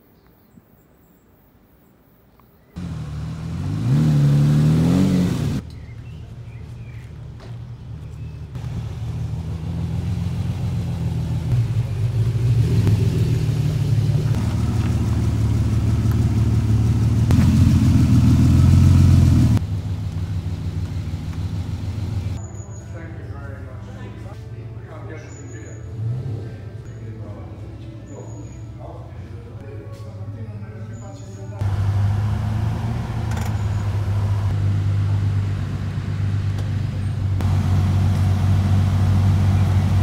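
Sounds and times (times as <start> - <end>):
car engine revving: 2.8 - 7.0, 7.7 - 22.4, 25.5 - 29.6, 31.6 - 40.0.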